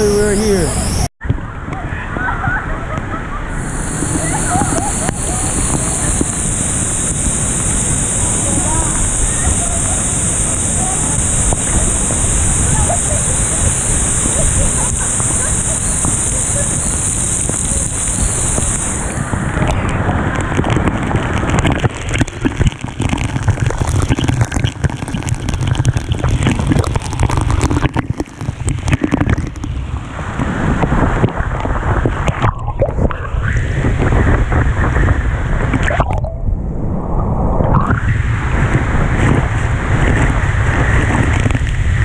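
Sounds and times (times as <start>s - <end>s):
wind buffeting microphone: 0.0s - 42.0s
waterfall rushing: 3.4s - 33.2s.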